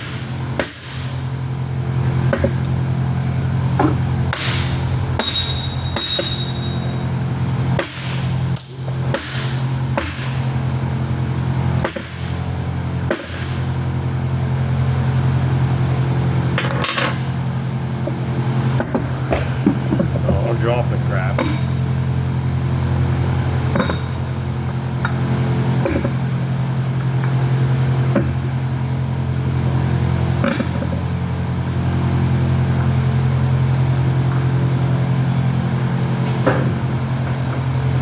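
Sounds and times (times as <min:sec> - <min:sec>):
hammer striking steel: 0:00.0 - 0:01.4, 0:03.8 - 0:07.0, 0:07.8 - 0:10.6, 0:11.8 - 0:13.8, 0:21.4 - 0:21.8
steady low hum: 0:00.0 - 0:38.0.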